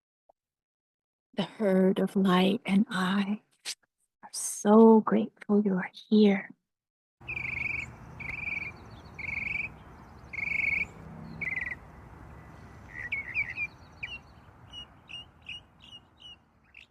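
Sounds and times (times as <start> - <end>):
short high bird chirps: 7.2 - 11.8, 12.4 - 16.9.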